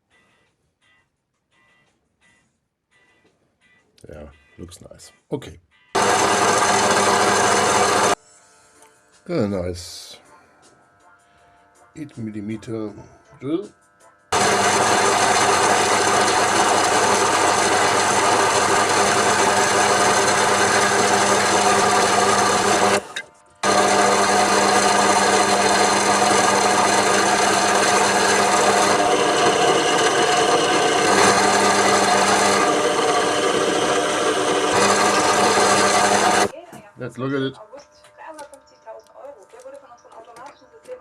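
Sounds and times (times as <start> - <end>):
lathe motor and gear hum: 6.0 - 8.2, 14.4 - 36.5
rough metal cutting noise: 6.0 - 8.2, 14.4 - 36.5.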